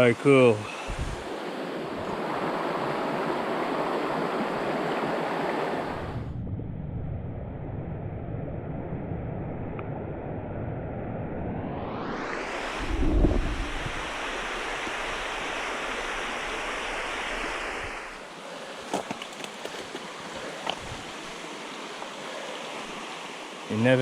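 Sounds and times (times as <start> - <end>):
creek water rushing: 0.0 - 5.9, 13.5 - 24.0
low rumble: 6.1 - 12.1.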